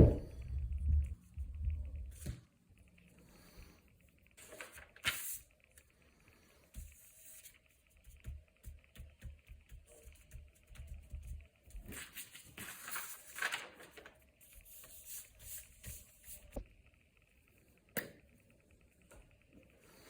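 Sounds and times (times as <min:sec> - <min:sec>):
paper rustling and scraping: 0:04.4 - 0:05.5, 0:11.8 - 0:16.6.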